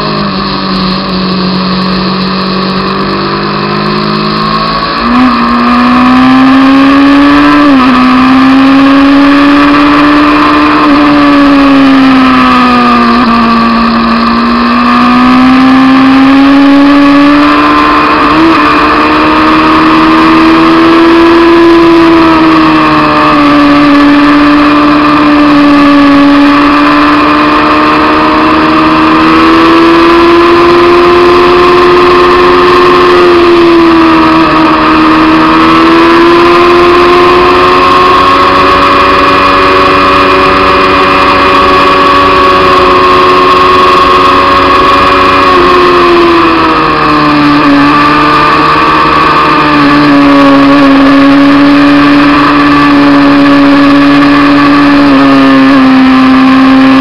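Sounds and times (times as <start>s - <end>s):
motorcycle engine running at speed: 0.0s - 57.0s.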